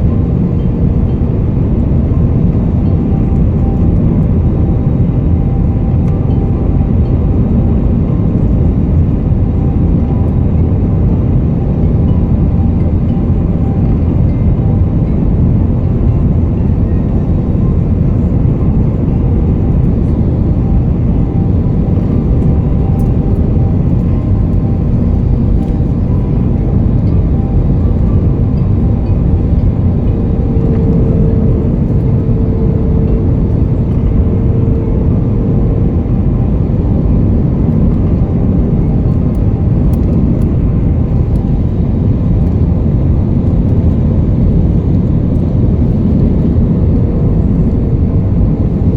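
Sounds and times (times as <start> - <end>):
airplane cabin rumble: 0.0 - 48.9
faint steady hum: 0.0 - 48.9.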